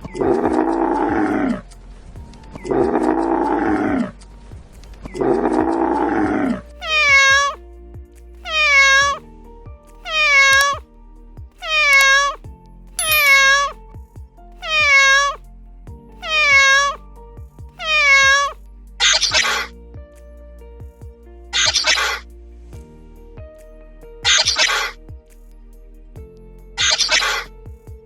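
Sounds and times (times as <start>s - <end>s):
background music: 0.0s - 28.0s
cat meowing: 6.8s - 7.6s, 8.4s - 9.2s, 10.0s - 10.8s, 11.6s - 12.4s, 13.0s - 13.8s, 14.6s - 15.4s, 16.2s - 17.0s, 17.8s - 19.7s, 21.6s - 22.2s, 24.3s - 24.9s, 26.8s - 27.5s.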